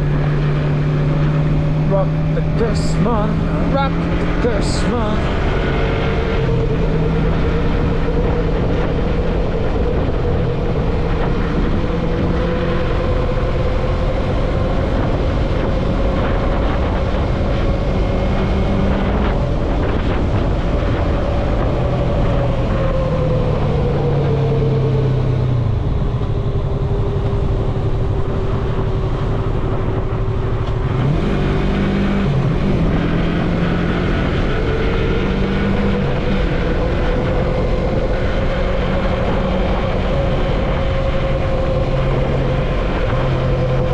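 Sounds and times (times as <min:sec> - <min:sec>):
wind rush on microphone: 0:00.0 - 0:43.9
motorcycle engine running: 0:25.5 - 0:43.9.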